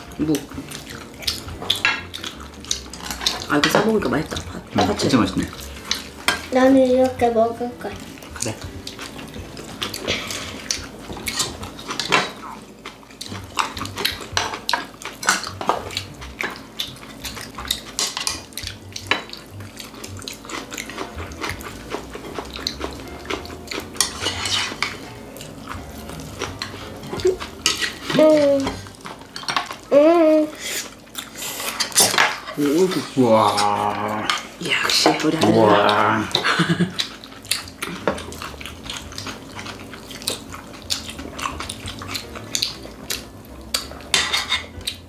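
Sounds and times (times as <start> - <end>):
chopsticks clinking on plates: 0.3 - 6.5, 13.3 - 29.8, 31.6 - 34.4, 39.1 - 45.0.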